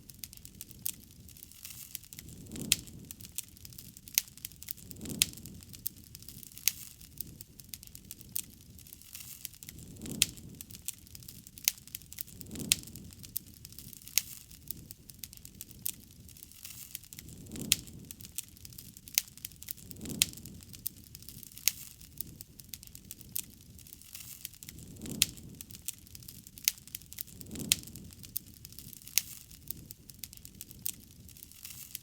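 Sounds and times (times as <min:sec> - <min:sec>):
campfire crackling: 0:00.0 - 0:32.0
soft low rush of fire: 0:00.0 - 0:32.0.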